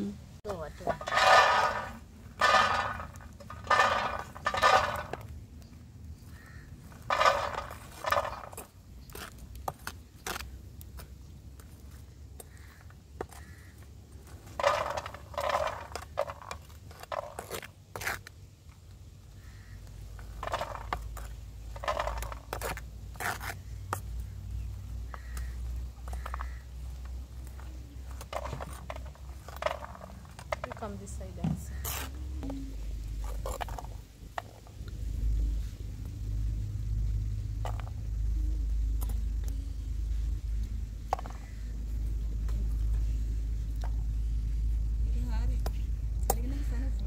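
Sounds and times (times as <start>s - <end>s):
sand and peanuts scraping in pan: 0.5s - 5.3s, 6.3s - 10.6s.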